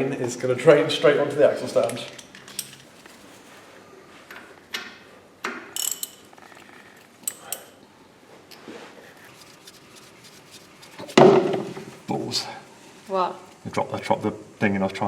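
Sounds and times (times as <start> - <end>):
metal tools clinking: 1.8 - 3.1, 5.8 - 6.5.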